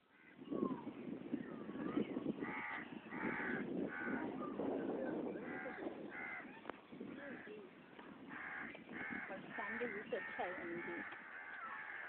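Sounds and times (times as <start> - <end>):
crows cawing: 2.4 - 4.4, 5.4 - 6.7, 8.2 - 12.0.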